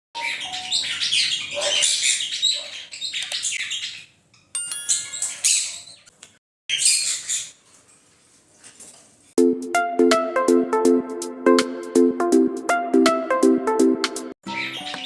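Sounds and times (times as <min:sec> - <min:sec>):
conures chirping: 0:00.2 - 0:07.8, 0:14.5 - 0:15.0
chime-like tones: 0:04.5 - 0:05.8.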